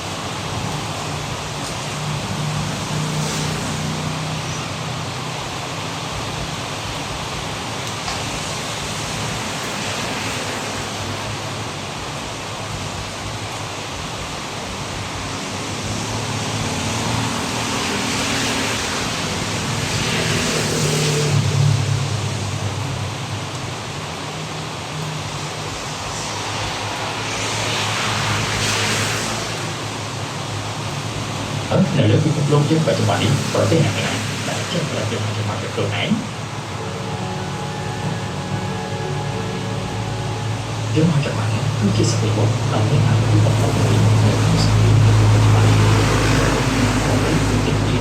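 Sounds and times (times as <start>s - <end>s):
heavy rain pouring: 0.0s - 48.0s
low hum: 21.2s - 48.0s.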